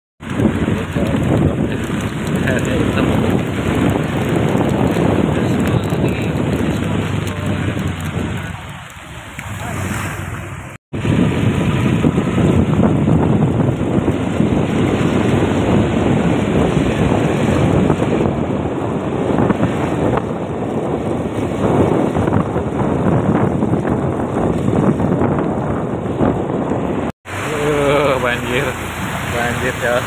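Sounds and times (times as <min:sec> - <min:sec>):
floodwater flowing: 0:00.2 - 0:30.0
heavy rain: 0:00.2 - 0:30.0
wind buffeting microphone: 0:00.2 - 0:30.0.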